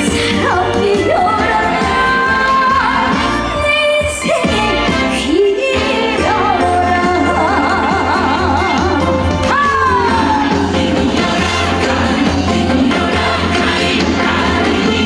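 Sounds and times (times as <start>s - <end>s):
woman singing with vibrato: 0.0s - 11.8s
live band: 0.0s - 15.0s
steady bass line: 6.2s - 15.0s.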